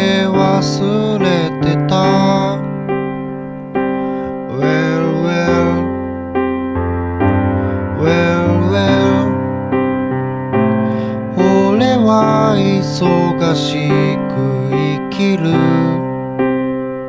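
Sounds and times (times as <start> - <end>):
person singing: 0.0 - 3.1, 4.1 - 6.4, 7.3 - 9.9, 10.6 - 16.5
piano accompaniment: 0.0 - 17.0.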